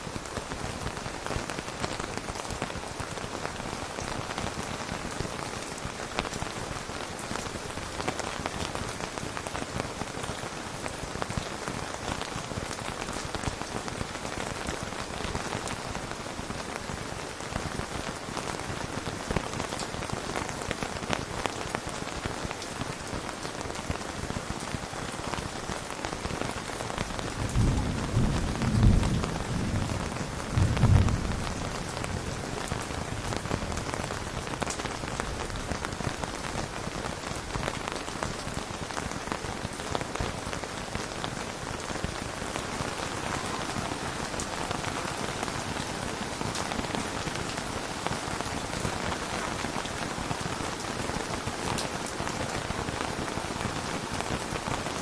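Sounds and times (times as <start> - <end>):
steady rain falling: 0.0 - 55.0
thunder rumble: 27.4 - 32.3.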